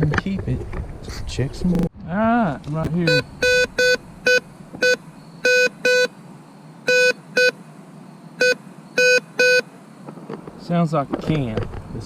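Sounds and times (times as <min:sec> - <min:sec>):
metal detector beeps: 0:03.0 - 0:06.1, 0:06.8 - 0:07.6, 0:08.4 - 0:09.7.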